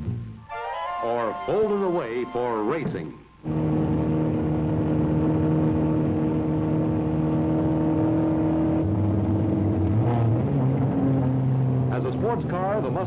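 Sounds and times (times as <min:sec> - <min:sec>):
car engine running: 0:03.4 - 0:13.0.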